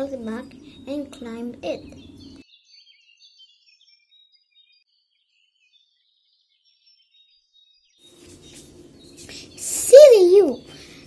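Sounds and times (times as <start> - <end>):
faint bird chirping: 0.0 - 11.0
low hiss: 8.1 - 11.0.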